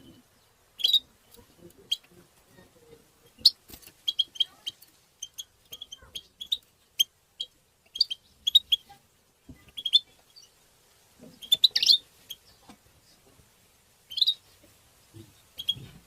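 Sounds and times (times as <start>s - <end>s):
finch chirping calls: 0.0s - 2.2s, 3.2s - 9.0s, 9.6s - 10.6s, 11.2s - 12.7s, 14.1s - 14.6s, 15.2s - 16.0s.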